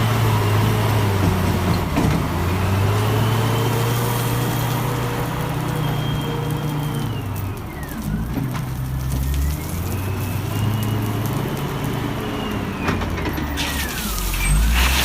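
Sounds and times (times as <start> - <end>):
heavy machine engine running: 0.0 - 15.0
hiss: 13.6 - 15.0.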